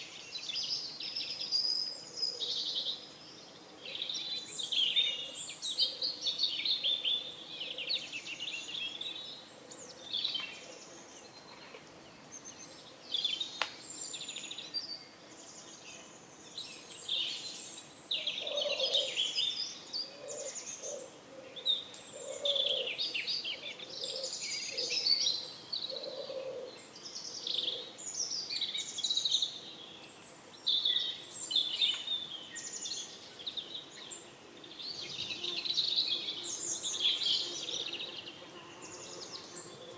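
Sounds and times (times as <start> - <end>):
songbirds chirping and twittering: 0.0 - 39.9
pigeon cooing: 22.2 - 23.0.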